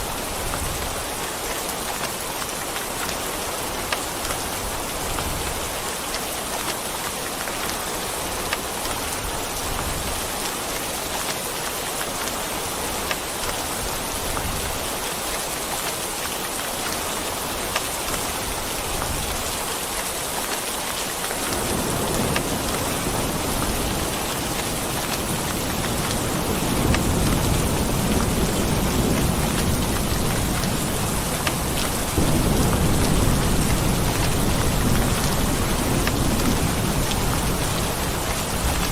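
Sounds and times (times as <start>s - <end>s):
rain drops pattering: 0.0s - 38.9s
low rolling thunder: 21.5s - 38.9s.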